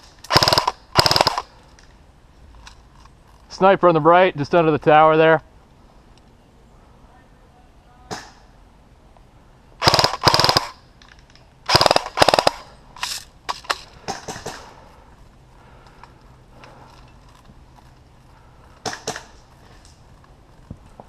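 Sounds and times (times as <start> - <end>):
airsoft rifle full-auto bursts: 0.3 - 1.5, 9.8 - 10.8, 11.7 - 12.7.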